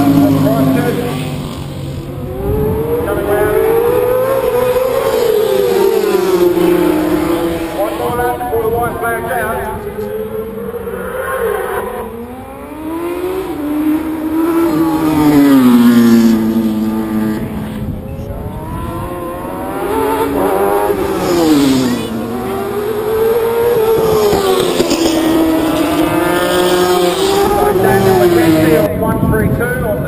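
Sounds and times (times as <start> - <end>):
racing motorcycle engines passing: 0.0 - 30.0.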